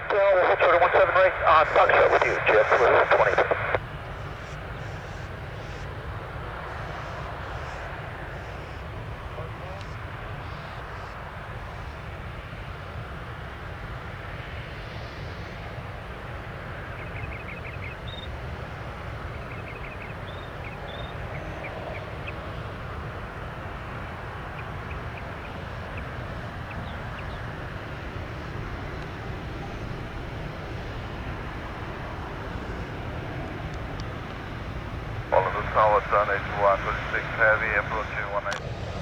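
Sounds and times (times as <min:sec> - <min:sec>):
jet engines rumbling: 0:00.0 - 0:39.0
faint bird chirps: 0:19.4 - 0:22.4.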